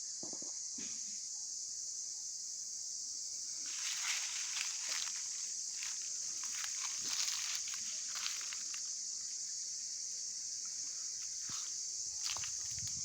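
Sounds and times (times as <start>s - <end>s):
high-pitched insect chorus: 0.0s - 13.0s
faint rustles and crunches: 3.6s - 9.0s, 11.2s - 13.0s.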